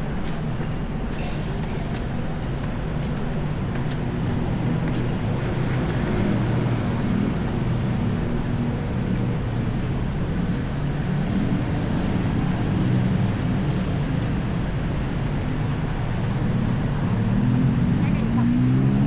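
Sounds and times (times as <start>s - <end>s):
hum of vehicle engines: 0.0s - 19.0s
engine speeding up: 3.5s - 19.0s.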